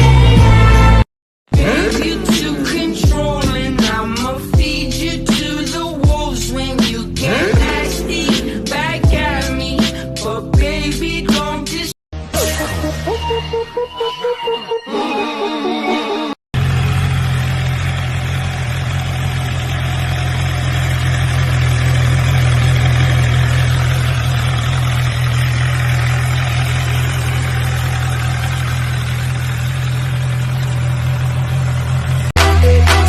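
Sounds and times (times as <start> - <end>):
vehicle engine running steadily: 16.6 - 32.9.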